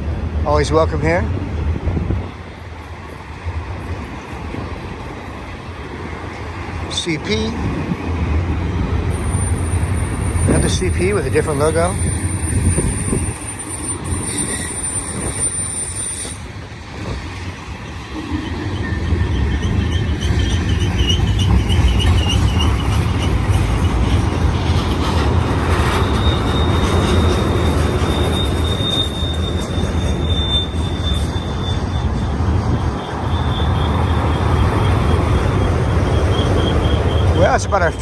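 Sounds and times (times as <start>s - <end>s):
train wheels rumbling on rail: 0.0s - 38.0s
high-pitched wheel squeal: 9.1s - 16.6s, 18.3s - 24.1s, 25.1s - 38.0s.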